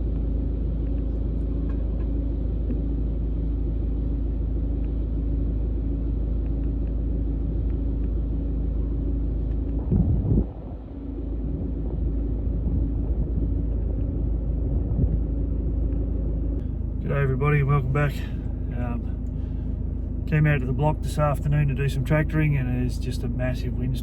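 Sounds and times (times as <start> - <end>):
engine hum: 0.0 - 24.0
strong wind buffeting: 9.6 - 21.9.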